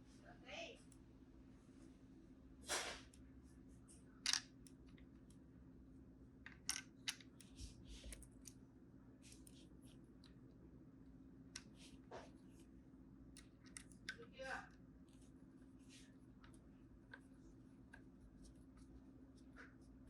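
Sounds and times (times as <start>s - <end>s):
faint steady hum: 0.0s - 20.0s
small parts clicking and tapping: 4.2s - 5.4s, 6.4s - 8.6s, 13.3s - 14.5s.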